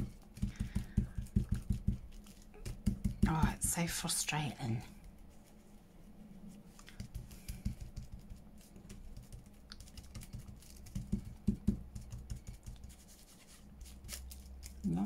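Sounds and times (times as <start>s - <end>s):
paper being handled: 12.7s - 15.0s.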